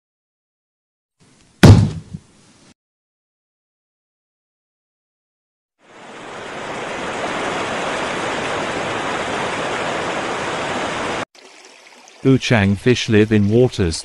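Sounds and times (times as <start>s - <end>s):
water rushing over rocks: 5.9s - 12.2s.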